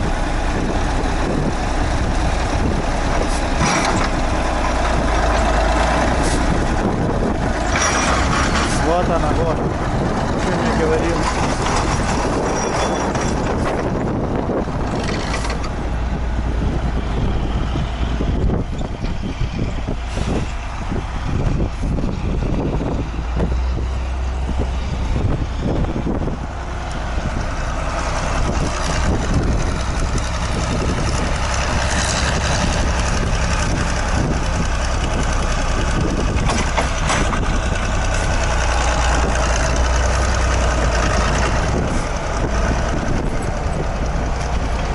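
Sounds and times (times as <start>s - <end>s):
tractor diesel engine running: 0.0s - 44.9s
irregular knocks and clunks: 3.1s - 5.0s, 11.2s - 14.1s, 36.3s - 37.5s.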